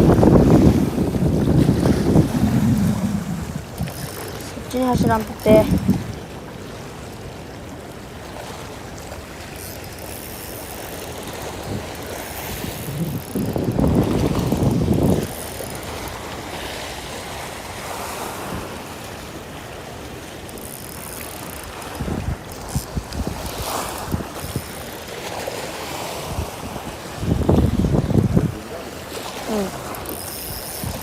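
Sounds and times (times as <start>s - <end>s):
wind buffeting microphone: 0.0s - 6.4s, 11.4s - 16.6s, 21.6s - 24.8s, 26.1s - 28.8s.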